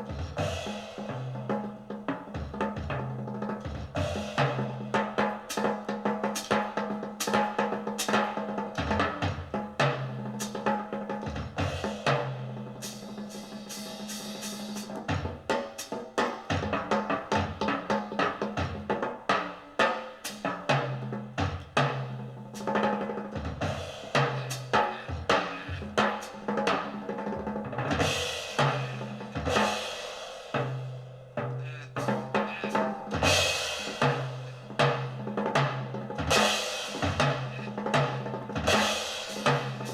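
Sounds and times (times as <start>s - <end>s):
jazz drum kit: 0.0s - 39.9s
cymbal wash: 28.0s - 39.9s.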